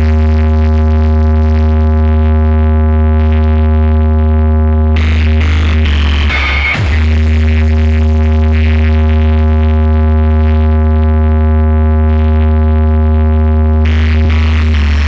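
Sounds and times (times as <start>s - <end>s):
music over sound system: 3.1s - 15.0s
loud deep bass note: 4.9s - 8.1s.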